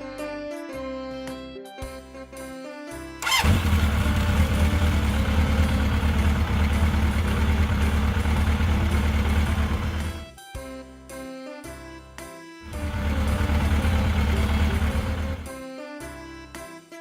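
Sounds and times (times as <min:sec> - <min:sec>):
vehicle engine starting and rumbling: 0:03.2 - 0:10.2, 0:12.7 - 0:15.6.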